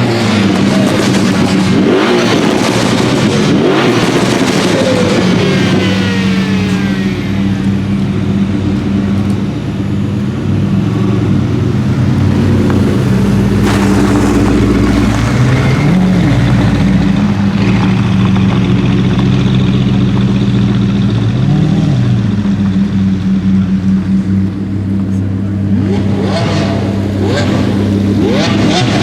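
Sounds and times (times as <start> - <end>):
car engine running: 0.0 - 29.0
rushing noise: 10.0 - 19.2.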